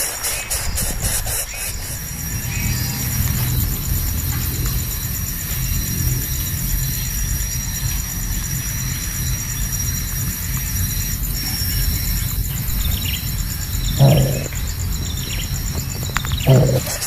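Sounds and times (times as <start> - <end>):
insect chirring: 0.0 - 17.0
low outdoor rumble: 1.7 - 17.0
harsh animal call: 12.7 - 17.0.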